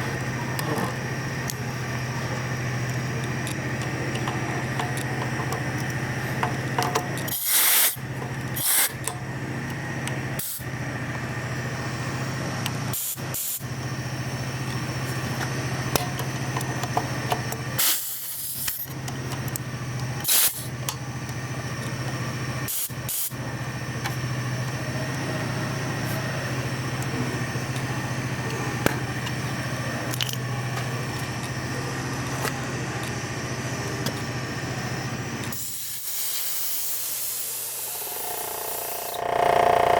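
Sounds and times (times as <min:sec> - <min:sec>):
air compressor humming: 0:00.0 - 0:39.9
compressed air hiss: 0:07.3 - 0:08.0, 0:08.6 - 0:09.0, 0:17.8 - 0:18.8, 0:20.2 - 0:20.7, 0:22.7 - 0:23.3, 0:35.5 - 0:38.2.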